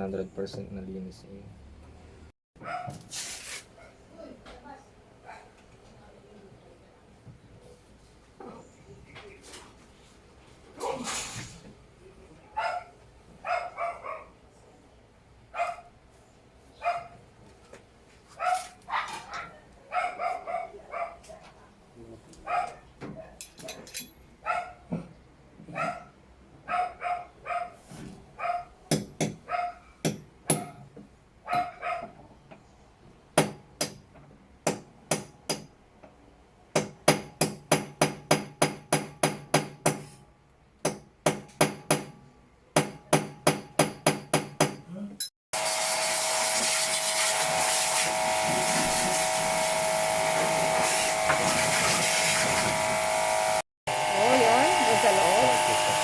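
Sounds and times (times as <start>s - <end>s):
hammering on metal: 28.9s - 30.8s, 33.4s - 35.8s, 36.8s - 40.1s, 40.8s - 42.2s, 42.8s - 44.9s
motor whirring: 47.7s - 56.0s.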